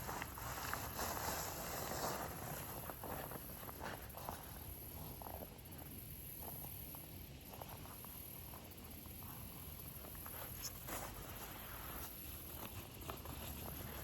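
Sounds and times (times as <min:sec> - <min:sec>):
soft rustles: 0:00.0 - 0:05.4, 0:09.2 - 0:14.0
steady high-pitched hiss: 0:00.0 - 0:14.0.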